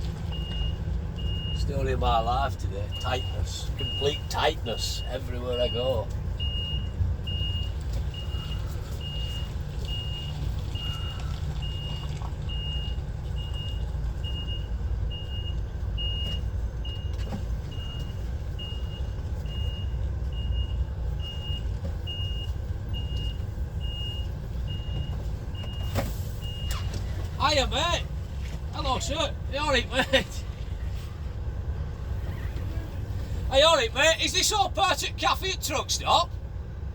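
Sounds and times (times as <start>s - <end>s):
diesel truck engine running: 0.0s - 36.9s
reversing alarm beeping: 0.3s - 28.1s.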